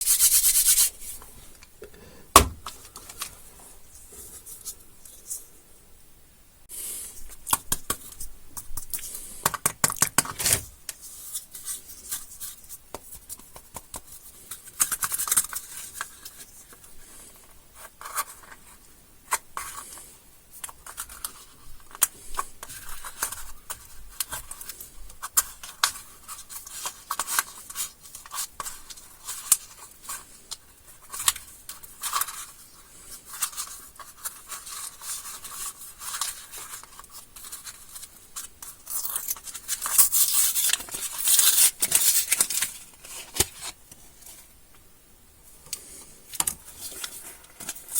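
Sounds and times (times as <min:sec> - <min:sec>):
loud thump: 0:02.3 - 0:02.7
plastic wrappers crinkling: 0:33.3 - 0:44.5.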